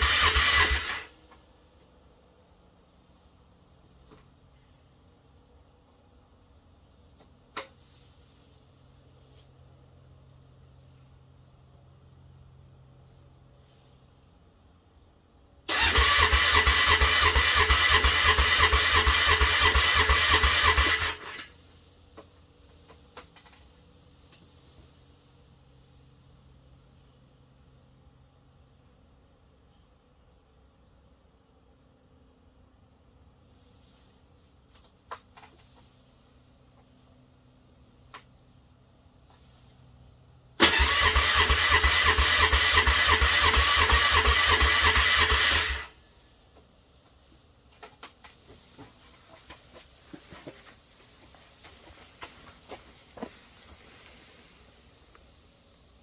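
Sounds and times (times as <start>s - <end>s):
engine cranking by starter: 0.0s - 1.2s, 15.7s - 21.5s, 40.6s - 46.0s.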